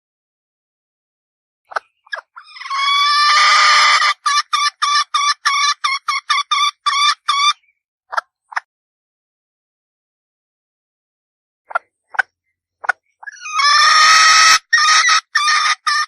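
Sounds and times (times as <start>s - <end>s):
hen calling: 1.7s - 7.8s, 13.0s - 16.0s
hen clucking: 1.7s - 8.7s, 11.7s - 16.0s.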